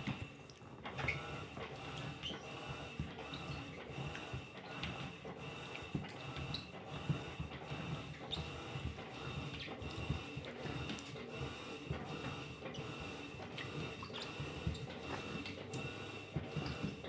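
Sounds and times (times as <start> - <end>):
washing machine agitating: 0.0 - 17.0.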